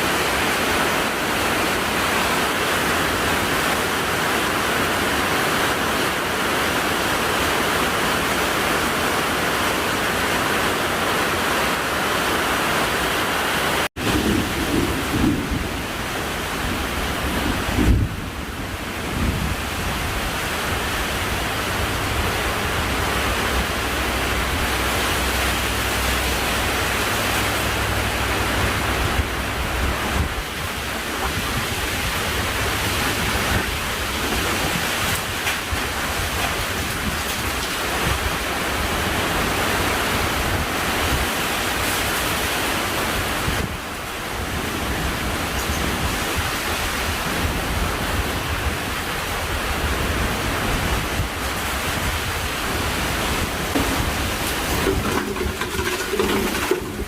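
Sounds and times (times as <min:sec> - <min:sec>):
heavy rain pouring: 0:00.0 - 0:57.0
low thunder rumble: 0:14.0 - 0:34.8.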